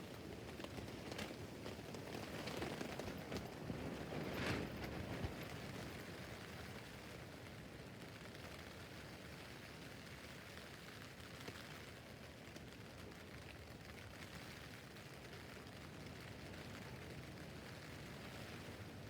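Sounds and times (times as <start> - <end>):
rain on a tent roof: 0.0 - 19.0.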